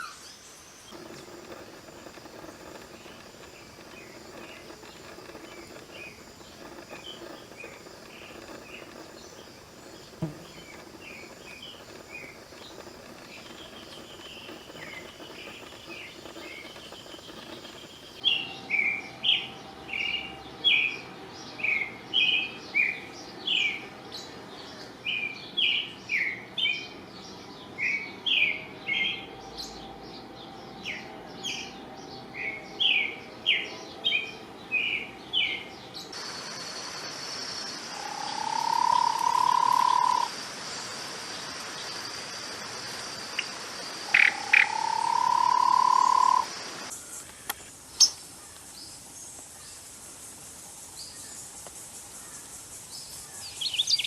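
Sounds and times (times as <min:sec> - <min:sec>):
high insect buzz: 0:00.0 - 0:18.4, 0:36.1 - 0:48.2
birds chirping: 0:00.0 - 0:23.8, 0:37.5 - 0:42.1, 0:43.2 - 0:49.8
long low rising calls: 0:37.9 - 0:40.3.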